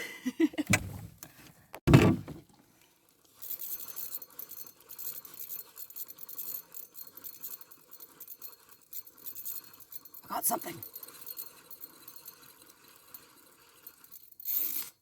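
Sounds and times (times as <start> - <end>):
thump: 0.7 - 1.1, 1.9 - 2.4
fishing reel whirring: 3.2 - 15.0.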